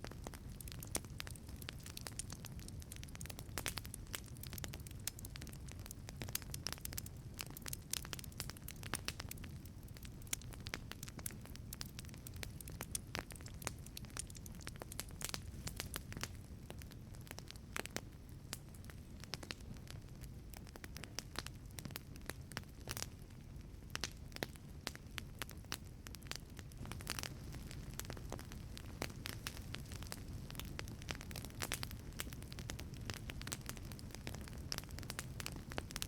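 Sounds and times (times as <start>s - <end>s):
low rumble of fire: 0.0s - 36.0s
wood fire crackling: 0.0s - 36.0s.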